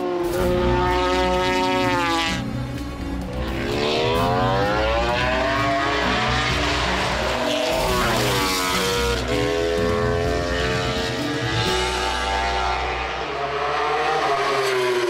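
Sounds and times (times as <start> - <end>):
racing motorcycle engine revving: 0.0 - 15.0.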